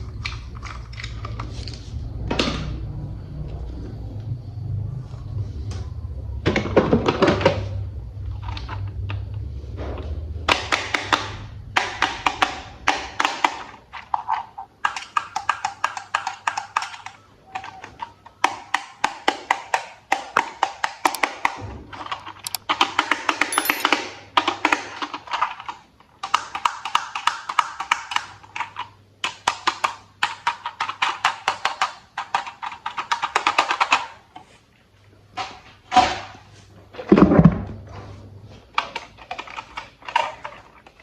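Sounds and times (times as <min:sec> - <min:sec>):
plastic toy parts clicking together: 0:22.4 - 0:22.6, 0:23.5 - 0:23.9.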